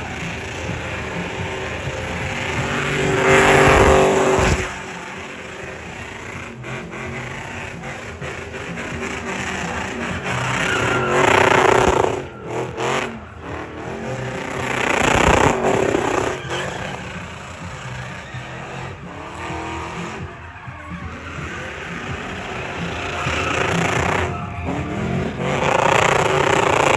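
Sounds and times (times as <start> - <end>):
car engines passing: 0.0 - 26.9.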